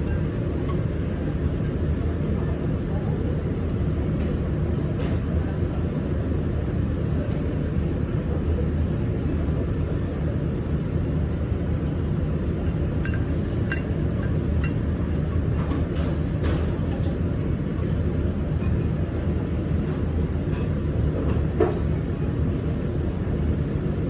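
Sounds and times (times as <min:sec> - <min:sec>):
utensils clinking on bowl: 0:00.0 - 0:00.9, 0:12.6 - 0:14.9
low machinery rumble: 0:00.0 - 0:24.0.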